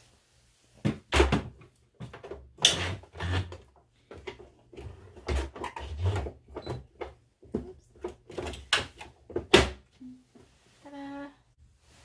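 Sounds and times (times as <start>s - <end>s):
fabric rustling: 10.4s - 12.0s.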